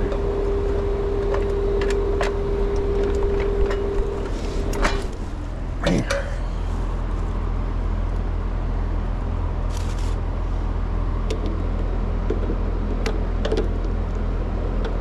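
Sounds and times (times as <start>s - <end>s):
low mechanical hum: 0.0s - 15.0s
rustle: 9.7s - 10.2s.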